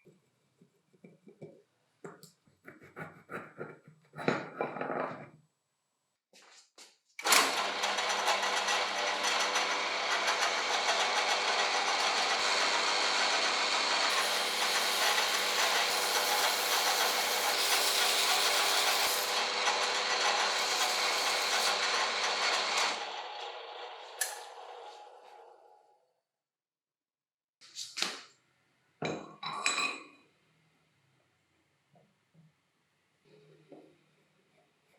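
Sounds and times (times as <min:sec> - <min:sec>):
power tool rattling: 0:07.2 - 0:24.9.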